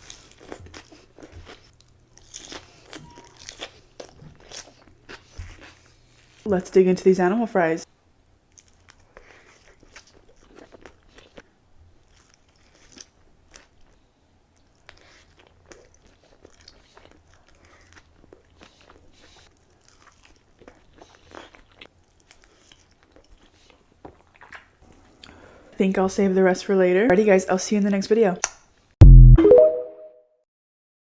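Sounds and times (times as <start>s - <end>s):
wet chewing: 0.0s - 6.4s, 8.5s - 11.4s, 12.0s - 14.0s, 14.6s - 25.3s.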